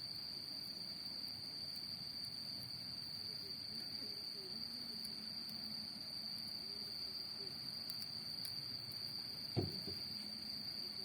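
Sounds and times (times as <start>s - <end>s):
crickets chirring: 0.0s - 11.0s
dull thump: 9.6s - 10.0s.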